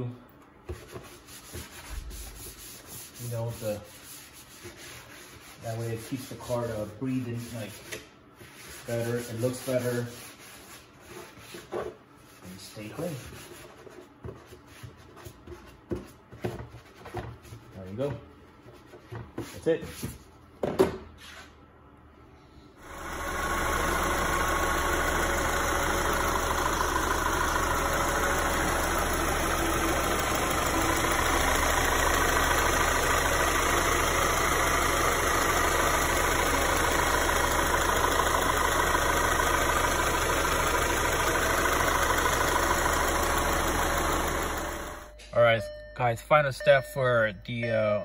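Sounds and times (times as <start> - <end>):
car engine idling: 22.8 - 45.1.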